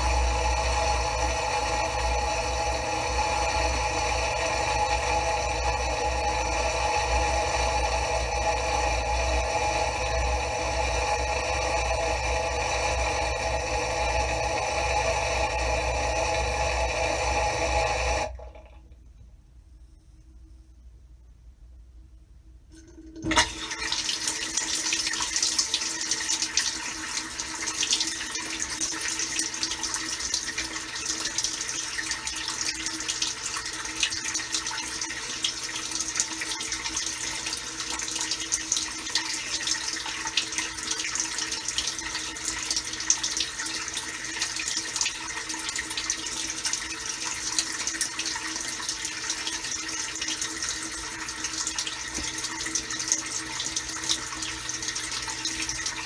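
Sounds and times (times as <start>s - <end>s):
steady pump hum: 0.0s - 56.0s
water spraying inside dishwasher: 23.1s - 56.0s.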